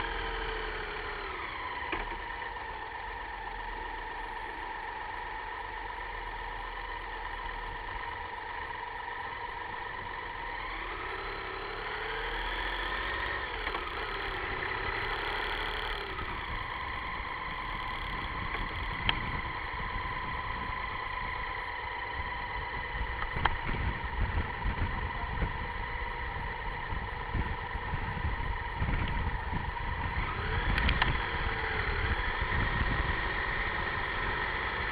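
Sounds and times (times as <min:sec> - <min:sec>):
car engine running: 0:00.0 - 0:34.9
wind buffeting microphone: 0:22.2 - 0:33.2.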